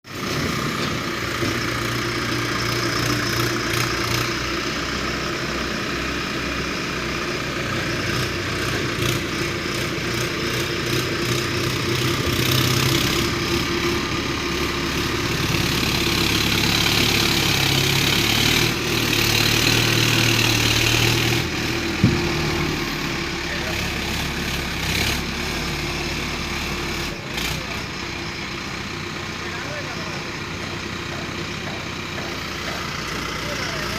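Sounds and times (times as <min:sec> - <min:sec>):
tractor engine running: 0:00.0 - 0:33.9.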